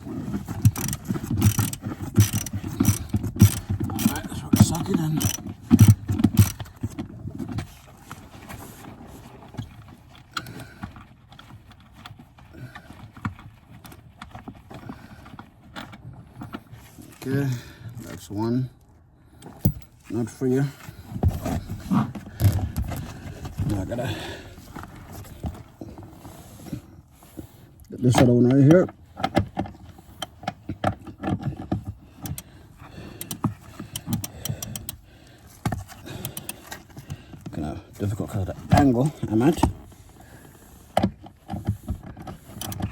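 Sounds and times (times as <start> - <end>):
socket wrench ratchet clicks: 0.8 - 6.7, 33.2 - 35.0.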